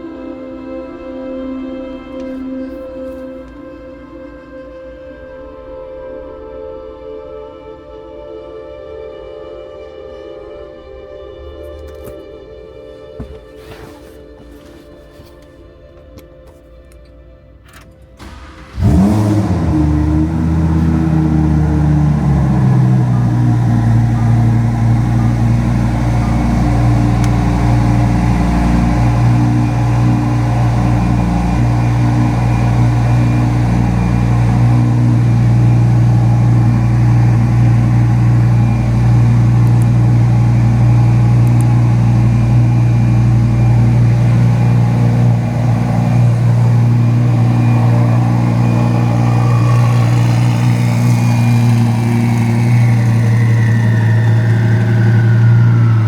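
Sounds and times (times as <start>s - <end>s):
car engine running: 18.2s - 56.0s.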